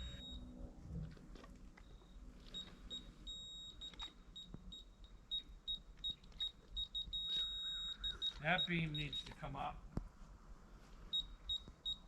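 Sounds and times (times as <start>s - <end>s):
laser level beeping: 0.0s - 0.6s.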